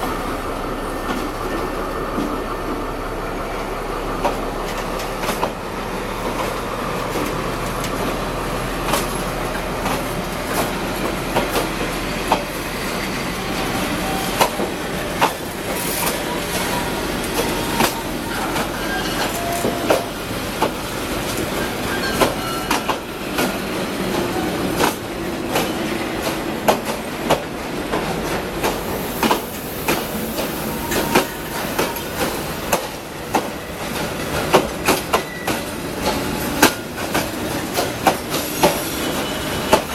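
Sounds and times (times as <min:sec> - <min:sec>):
train wheels clacking over rail joints: 0:03.5 - 0:39.9
metallic wheel squeals: 0:15.9 - 0:20.1, 0:21.5 - 0:23.0.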